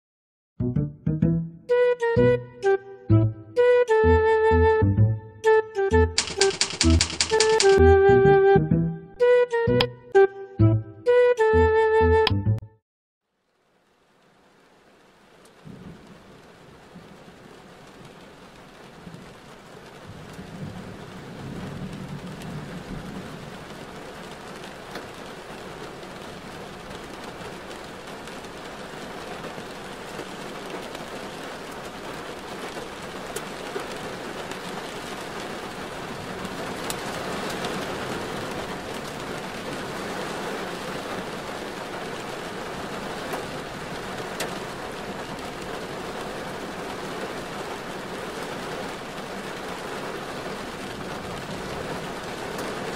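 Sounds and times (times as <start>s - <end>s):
drops ticking: 5.8s - 8.0s
rain falling on a car: 13.3s - 52.9s.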